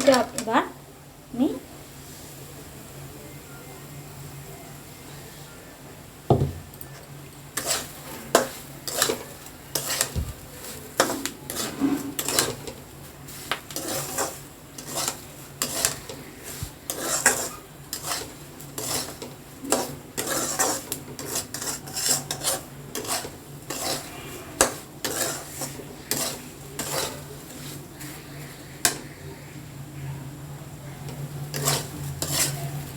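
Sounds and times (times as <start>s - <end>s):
metal spatula scraping a pan: 7.5s - 29.2s, 31.0s - 32.9s.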